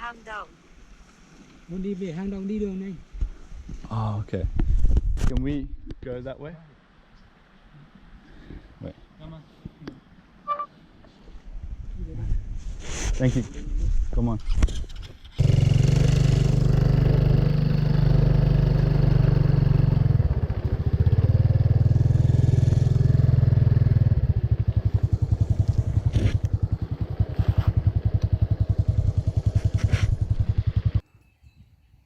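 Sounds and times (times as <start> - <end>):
motorbike engine riding off: 14.8 - 31.0.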